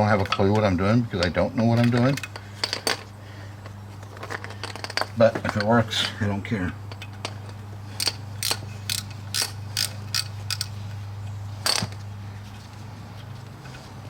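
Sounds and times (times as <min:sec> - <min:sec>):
hand ratchet clicking: 0:08.0 - 0:10.7.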